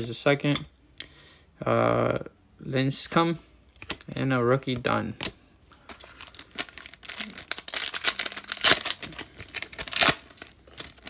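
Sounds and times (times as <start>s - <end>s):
wrapper tearing and crinkling: 5.9s - 11.0s.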